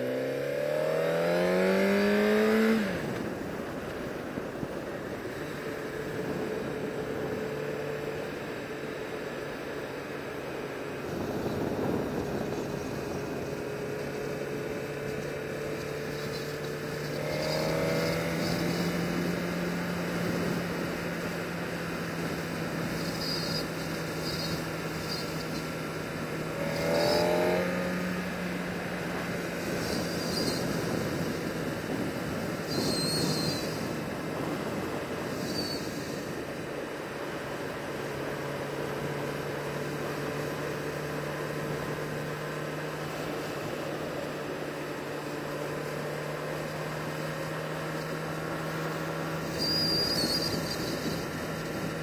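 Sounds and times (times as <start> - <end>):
motorcycle engine drone: 0.0 - 52.0
wind noise: 1.0 - 8.6, 10.6 - 38.2, 49.0 - 52.0.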